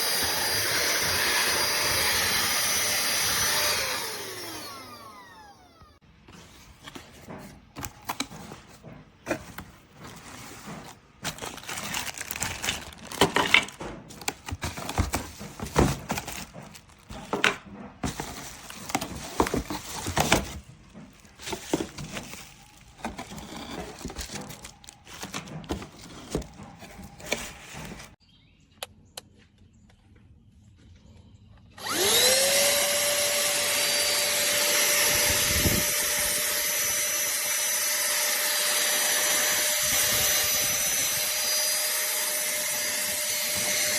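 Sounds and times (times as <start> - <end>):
handheld vacuum motor whine: 0.0 - 6.0, 11.2 - 28.2, 31.8 - 43.9
clicks knocks and scraping: 6.3 - 28.2.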